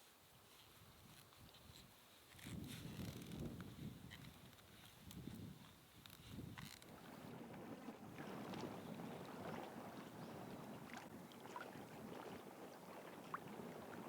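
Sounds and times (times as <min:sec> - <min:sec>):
faint wind: 0:00.0 - 0:14.0
water against a seawall: 0:03.3 - 0:14.0.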